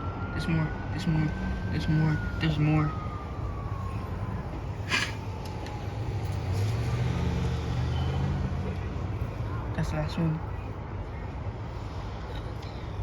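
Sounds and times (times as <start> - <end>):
siren tone: 0.0 - 6.7
cars driving past: 4.2 - 10.8.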